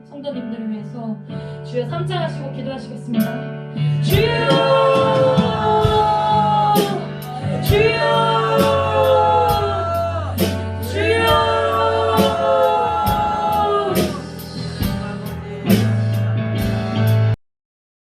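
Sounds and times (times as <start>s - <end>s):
worship band music: 3.1s - 17.4s.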